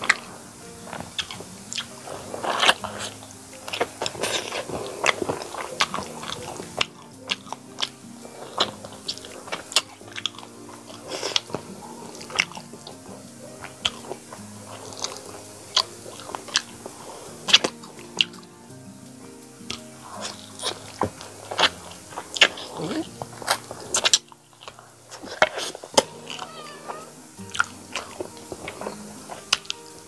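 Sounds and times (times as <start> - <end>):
soft background music: 0.0 - 30.0
wet mouth clicks and smacks: 19.7 - 26.2.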